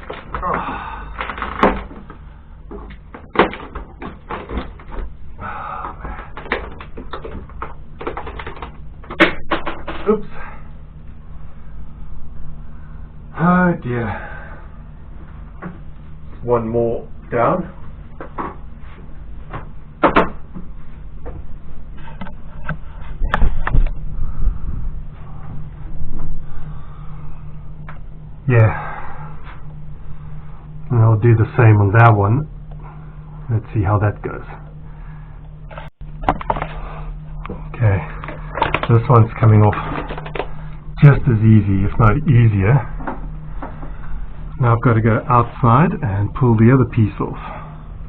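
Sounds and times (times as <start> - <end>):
wood being pried and broken: 0.0 - 2.1
wood cracking and breaking: 0.0 - 2.2, 2.9 - 5.0, 6.4 - 10.1.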